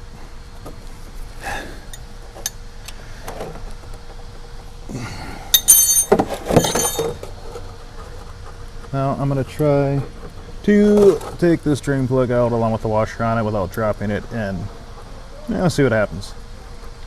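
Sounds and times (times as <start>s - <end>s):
metal hand tools clinking: 5.5s - 7.3s.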